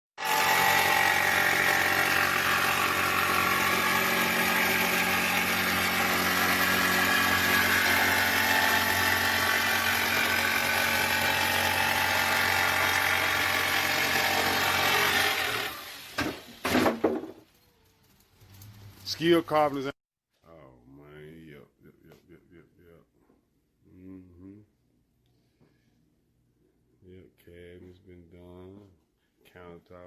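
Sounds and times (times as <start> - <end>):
machine droning: 0.2 - 16.4.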